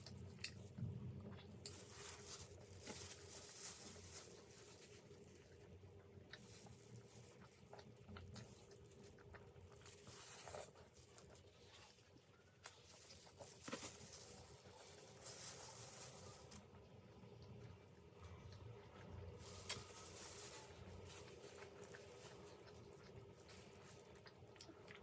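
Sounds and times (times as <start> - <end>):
chewing and mouth noise: 0.0 - 1.9, 4.3 - 13.4, 20.6 - 25.0.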